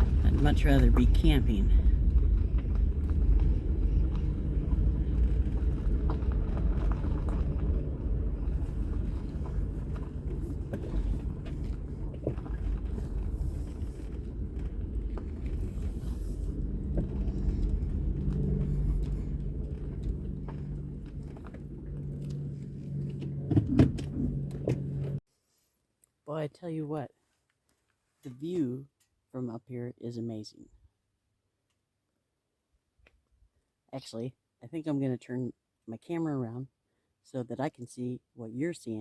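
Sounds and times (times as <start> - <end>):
tyres rumbling on rough road: 0.0 - 25.2
vehicle engine rumble: 0.0 - 25.2.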